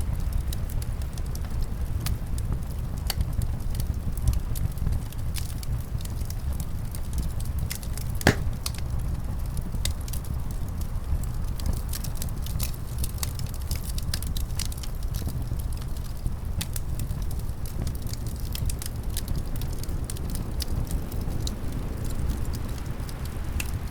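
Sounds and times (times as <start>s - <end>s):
wood fire crackling: 7.4s - 23.6s.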